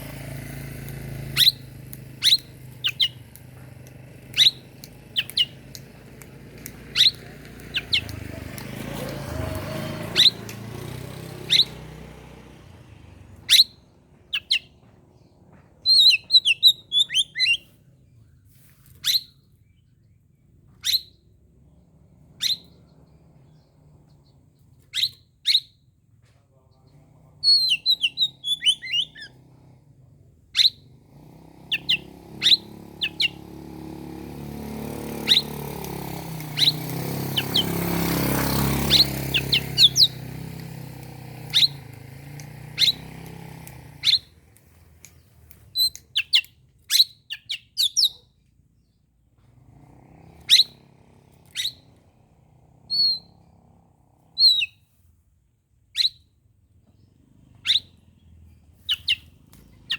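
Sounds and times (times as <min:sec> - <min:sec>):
bird chirping: 0:00.6 - 0:25.9, 0:26.6 - 0:29.8, 0:30.6 - 0:49.0, 0:50.1 - 0:52.1, 0:52.8 - 0:53.7, 0:54.3 - 0:54.9, 0:55.9 - 0:59.9
sharp whistled bird notes: 0:01.2 - 0:03.2, 0:04.2 - 0:05.6, 0:06.9 - 0:08.2, 0:11.3 - 0:12.0, 0:13.5 - 0:14.7, 0:15.9 - 0:17.7, 0:24.9 - 0:25.8, 0:27.4 - 0:29.4, 0:31.7 - 0:33.5, 0:34.9 - 0:40.4, 0:41.3 - 0:41.9, 0:42.6 - 0:44.3, 0:50.5 - 0:50.8, 0:51.5 - 0:51.9, 0:52.9 - 0:53.3, 0:54.4 - 0:54.8, 0:56.0 - 0:56.2, 0:57.6 - 0:58.0, 0:58.8 - 0:59.3.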